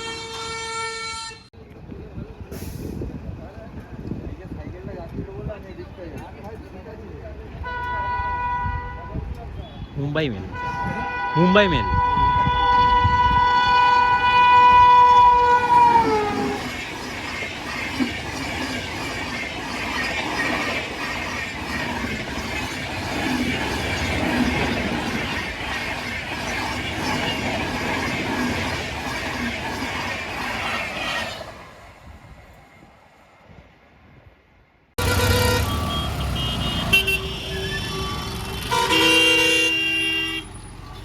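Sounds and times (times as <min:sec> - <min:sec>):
train horn blast: 0:00.0 - 0:01.5, 0:07.6 - 0:16.7, 0:35.0 - 0:40.5
train wheels clattering over rails: 0:15.6 - 0:31.4.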